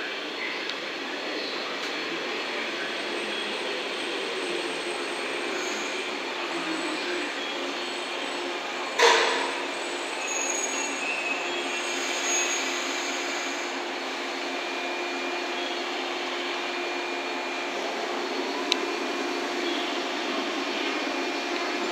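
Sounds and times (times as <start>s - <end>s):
electric train on rails: 0.0s - 21.9s
thin high squeal: 9.3s - 13.7s.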